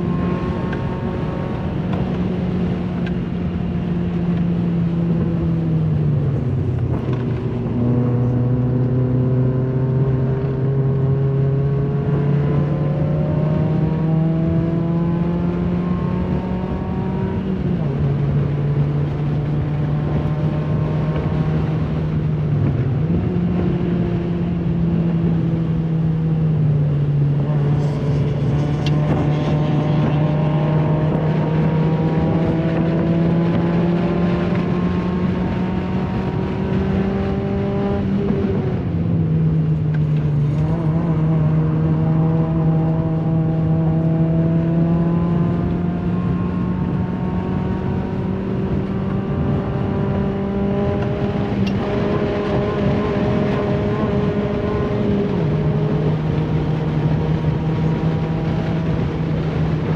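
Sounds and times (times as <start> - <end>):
road and tyre noise: 0.0 - 59.9
race car engine pulling hard: 26.9 - 59.9.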